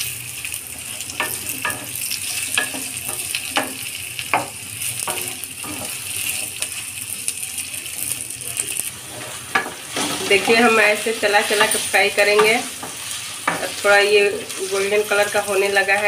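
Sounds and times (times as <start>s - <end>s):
potatoes sizzling in oil: 0.0s - 16.0s
wooden spatula scraping a pan: 8.9s - 16.0s.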